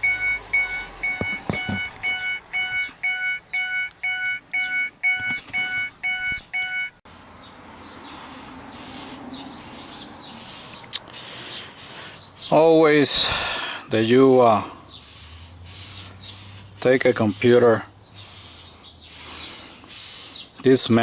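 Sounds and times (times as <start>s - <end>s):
vehicle warning chime beeping: 0.0s - 7.0s.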